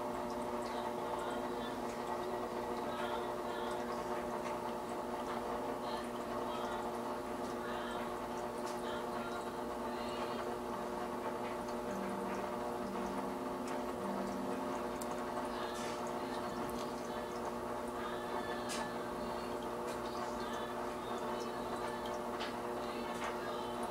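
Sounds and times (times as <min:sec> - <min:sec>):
aquarium filter hum: 0:00.0 - 0:23.9
water trickling and bubbling: 0:00.0 - 0:23.9
small water drips: 0:11.2 - 0:23.9.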